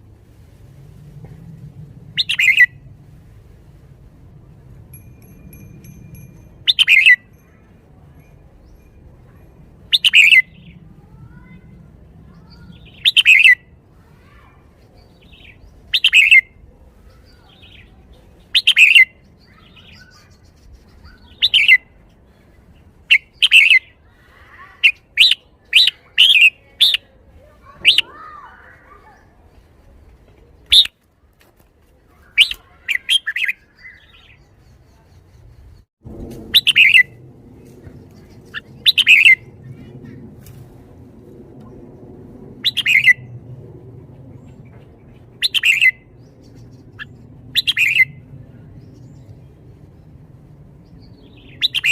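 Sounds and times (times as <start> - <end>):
low rumble: 0.0 - 14.0, 35.4 - 51.7
bulbul singing whistled phrases: 2.2 - 2.8, 6.6 - 7.3, 9.9 - 10.8, 12.4 - 13.7, 15.0 - 16.6, 17.2 - 21.9, 23.1 - 24.0, 24.8 - 27.1, 27.8 - 28.2, 30.7 - 30.9, 32.3 - 35.8, 36.6 - 37.1, 38.2 - 39.5, 42.6 - 43.3, 45.4 - 48.2, 51.0 - 51.9.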